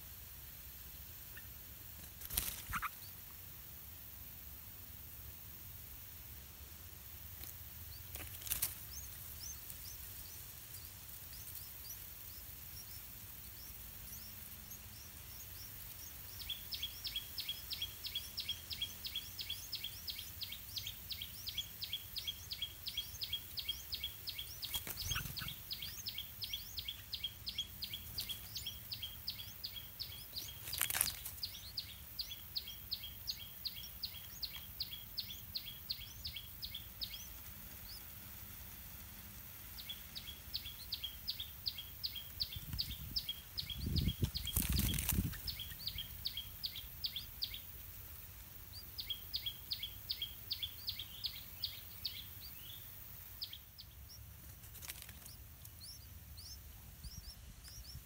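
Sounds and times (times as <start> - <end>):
high bird chirps: 2.3 - 3.2, 11.3 - 38.0.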